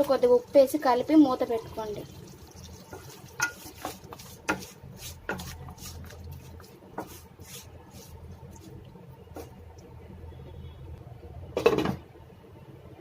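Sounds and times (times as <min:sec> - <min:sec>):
low steady hum: 0:00.0 - 0:13.0
spoon scraping metal pot: 0:02.9 - 0:09.5.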